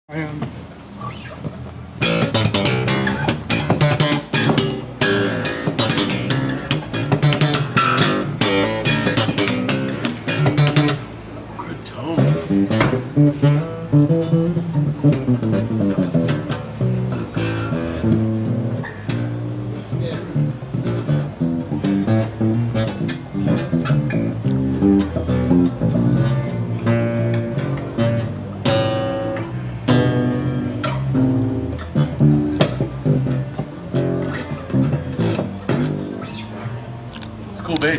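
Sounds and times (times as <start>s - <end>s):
acoustic bass plucked: 1.8s - 11.4s, 12.0s - 37.8s.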